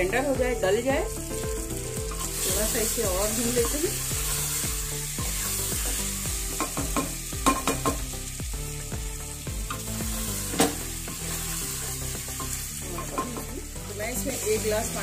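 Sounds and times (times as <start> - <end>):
meat sizzling in a pot: 0.0 - 15.0
sharp knock on pot: 6.6 - 8.0.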